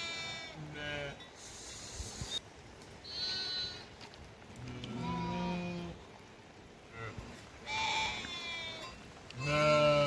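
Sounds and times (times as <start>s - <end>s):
sheep bleating: 0.0s - 1.2s, 3.1s - 3.9s, 4.6s - 6.0s, 6.9s - 10.0s.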